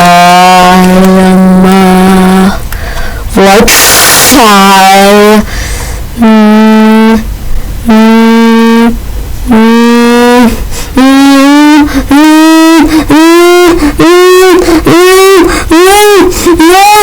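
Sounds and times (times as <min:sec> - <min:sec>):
buzzy sustained tones: 0:00.0 - 0:02.6, 0:06.2 - 0:17.0.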